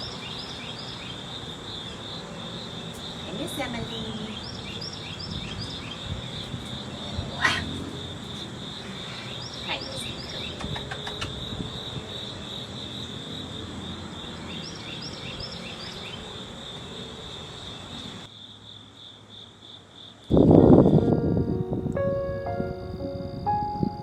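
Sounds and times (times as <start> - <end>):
crickets and insects chirping: 0.0 - 24.0
music: 20.3 - 24.0.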